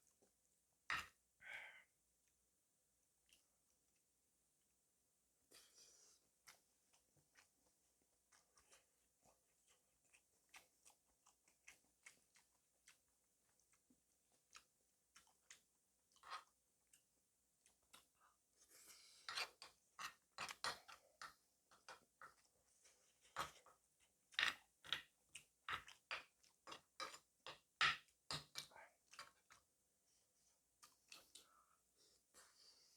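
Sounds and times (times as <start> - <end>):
person chewing food: 5.5 - 29.7, 30.7 - 32.7.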